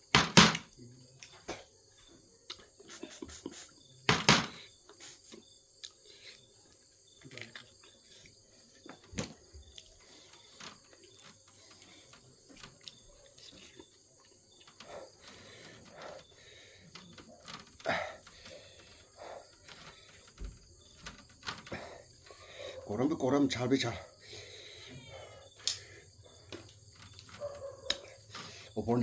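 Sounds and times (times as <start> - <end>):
crickets chirring: 0.0 - 29.0
chewing: 5.8 - 20.9.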